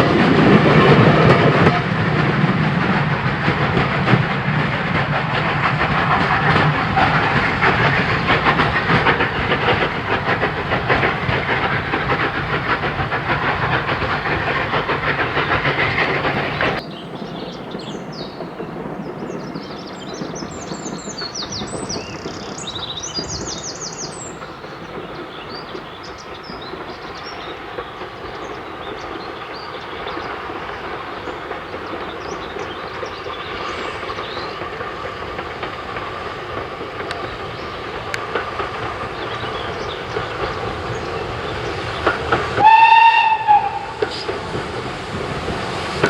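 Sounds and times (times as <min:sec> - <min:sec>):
train wheels clattering on rails: 0:00.0 - 0:46.0
birds chirping: 0:03.2 - 0:44.9
steam whistle blast: 0:42.6 - 0:44.3.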